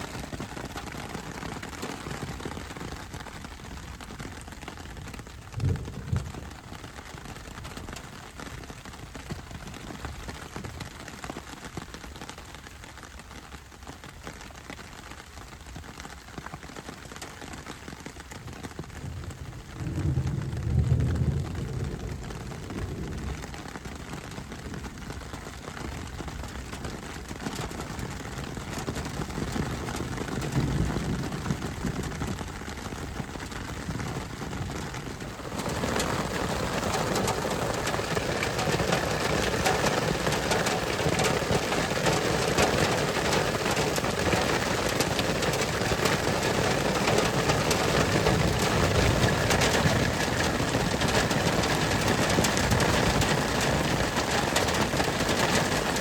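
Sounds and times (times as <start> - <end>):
heavy rain: 0.0 - 56.0
low thunder rumble: 5.5 - 6.9, 19.0 - 23.5, 29.5 - 46.2.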